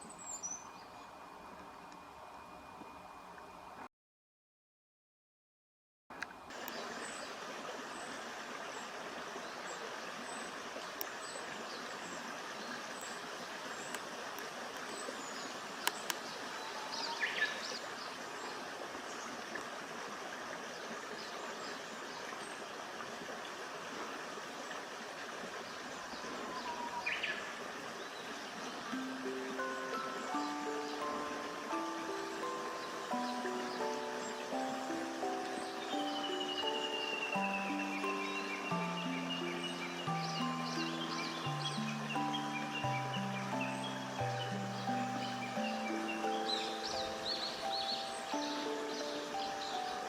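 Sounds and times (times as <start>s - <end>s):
woodland birds calling: 0.0s - 1.7s, 6.5s - 19.5s, 25.6s - 50.0s
background hiss: 0.0s - 3.9s, 6.1s - 50.0s
background music: 28.9s - 50.0s.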